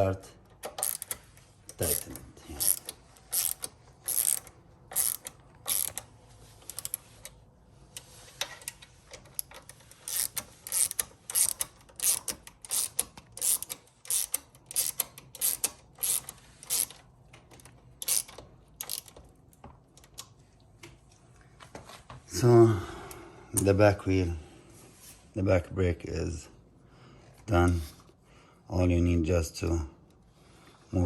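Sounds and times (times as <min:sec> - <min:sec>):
ratchet wrench clicking: 0:00.6 - 0:07.4, 0:08.7 - 0:19.2.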